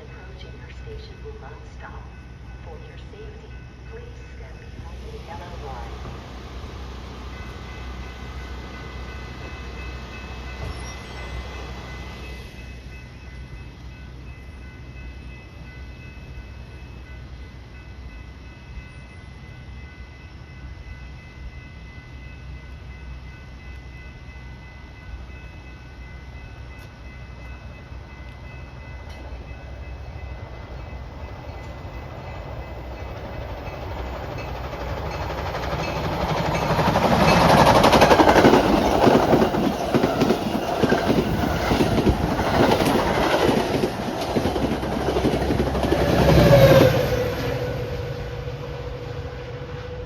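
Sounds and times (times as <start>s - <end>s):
train passing at speed: 0.0s - 50.0s
train wheels clattering: 26.8s - 47.7s.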